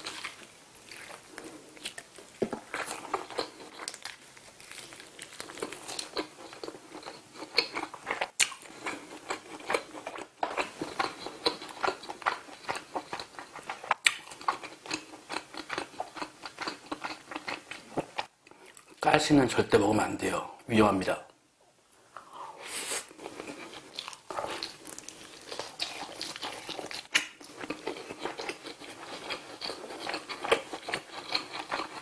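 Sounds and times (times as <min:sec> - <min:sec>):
chewing with wet mouth clicks: 0:05.3 - 0:19.0, 0:23.2 - 0:32.0.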